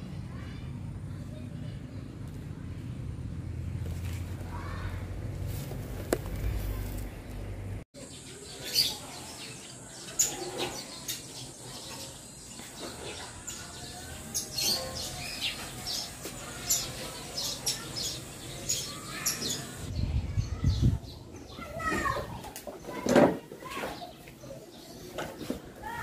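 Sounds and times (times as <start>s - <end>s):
birds chirping: 5.8s - 26.0s.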